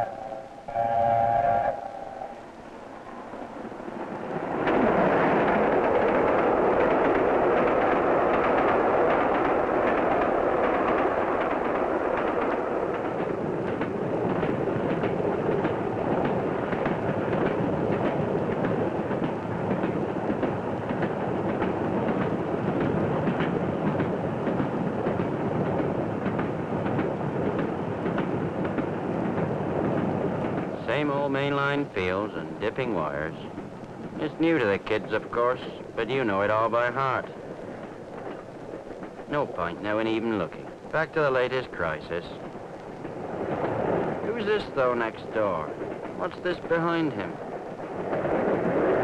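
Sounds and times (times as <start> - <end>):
train wheels rumbling on track: 0.0 - 49.0
wheels clicking over rail joints: 4.4 - 49.0.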